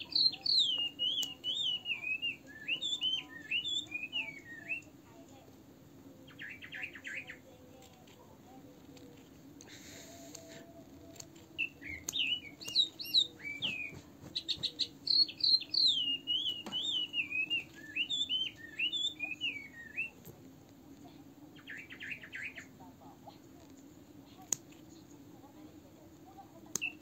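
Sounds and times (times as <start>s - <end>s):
bird trill: 0.0s - 4.9s, 6.2s - 7.4s, 11.6s - 20.2s, 21.6s - 22.7s
songbird warbling: 0.0s - 4.9s, 6.2s - 7.5s, 9.0s - 20.2s, 21.5s - 22.8s.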